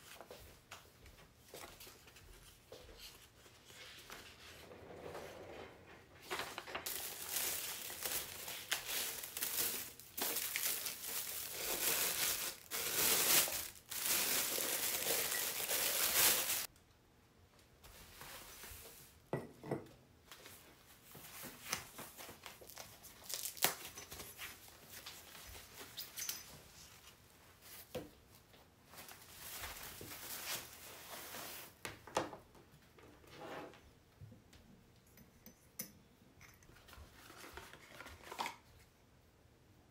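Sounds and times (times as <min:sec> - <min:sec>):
packaging rustling and tearing: 0:06.3 - 0:16.7, 0:22.5 - 0:24.0.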